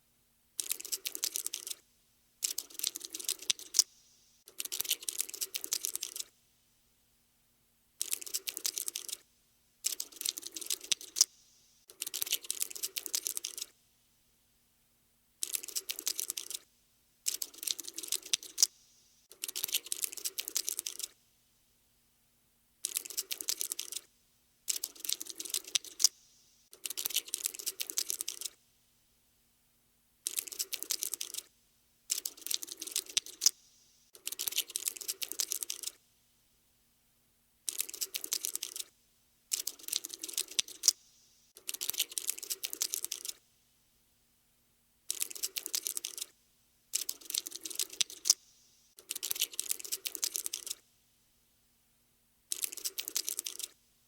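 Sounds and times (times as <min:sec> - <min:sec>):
rapid dry clicking: 0:00.6 - 0:01.8, 0:02.4 - 0:06.3, 0:08.0 - 0:09.2, 0:09.8 - 0:13.7, 0:17.3 - 0:21.2, 0:24.7 - 0:28.6, 0:30.3 - 0:31.5, 0:32.1 - 0:36.0, 0:37.7 - 0:38.9, 0:39.5 - 0:43.4, 0:45.1 - 0:46.3, 0:47.0 - 0:48.4, 0:49.0 - 0:50.8, 0:52.5 - 0:53.8.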